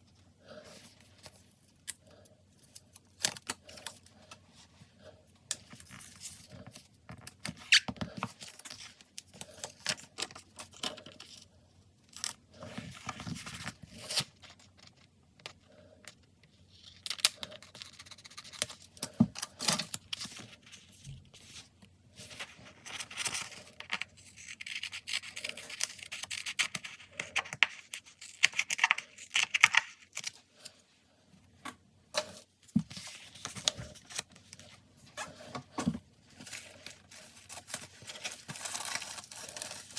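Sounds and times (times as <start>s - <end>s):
paper rustling and tearing: 36.4s - 39.9s.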